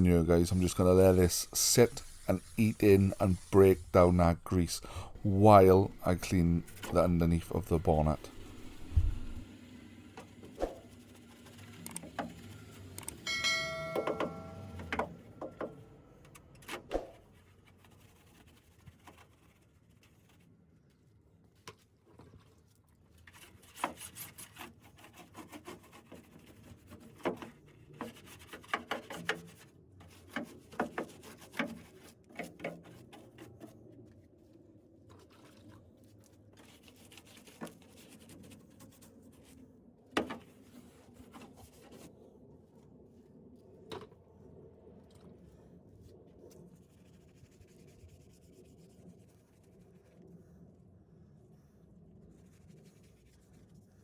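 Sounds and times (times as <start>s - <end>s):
rubbing and scrubbing: 0.0s - 9.5s, 16.9s - 21.2s, 21.8s - 43.5s, 45.4s - 50.8s.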